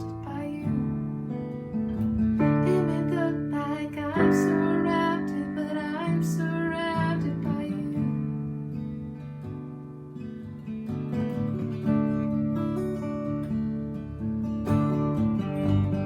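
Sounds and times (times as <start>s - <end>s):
strummed acoustic guitar: 0.0s - 16.0s.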